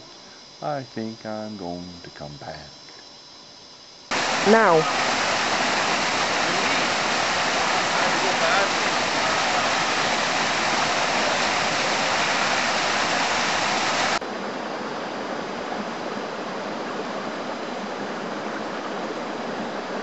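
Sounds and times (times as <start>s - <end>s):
flowing water rushing: 4.1s - 20.0s.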